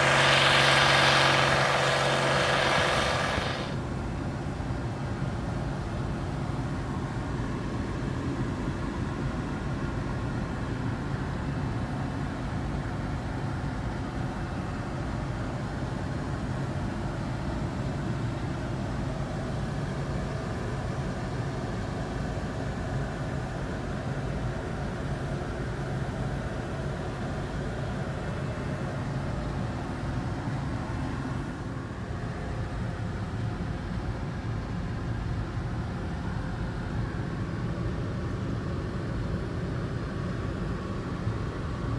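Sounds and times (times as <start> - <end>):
combine harvester droning: 0.0 - 4.0.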